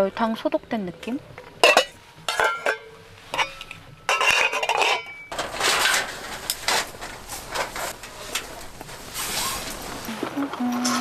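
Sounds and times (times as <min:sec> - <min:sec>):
dishes rattling and rustling: 0:01.4 - 0:10.1
dishes and cutlery clinking: 0:01.6 - 0:08.8.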